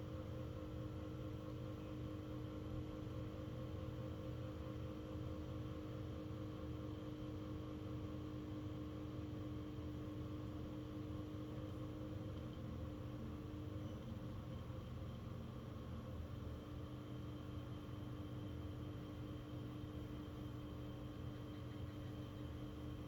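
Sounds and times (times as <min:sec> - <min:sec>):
portable fan motor hum: 0:00.0 - 0:23.0.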